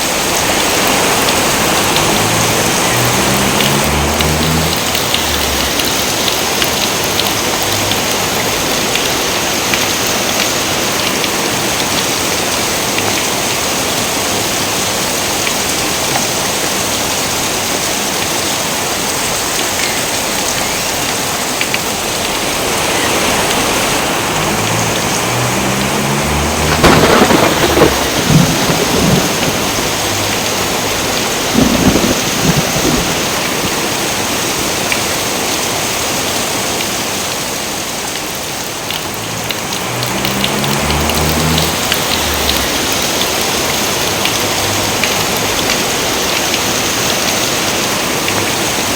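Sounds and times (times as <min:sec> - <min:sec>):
heavy rain: 0:00.0 - 0:48.9
thunderclap: 0:00.4 - 0:06.5, 0:23.6 - 0:34.4, 0:40.0 - 0:43.6.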